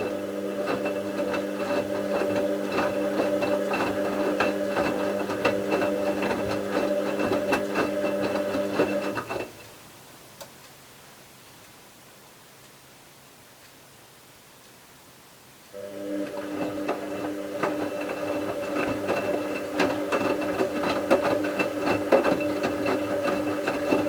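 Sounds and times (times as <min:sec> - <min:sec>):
washing machine electric hum: 0:00.0 - 0:09.7, 0:15.7 - 0:24.0.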